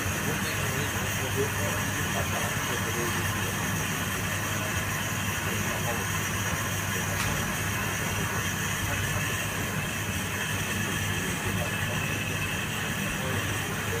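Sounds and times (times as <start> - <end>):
machine hum with rushing noise: 0.0 - 14.0.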